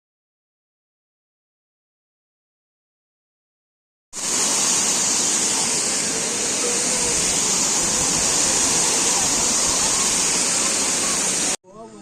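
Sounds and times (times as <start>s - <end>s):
waterfall rushing: 4.2s - 11.6s.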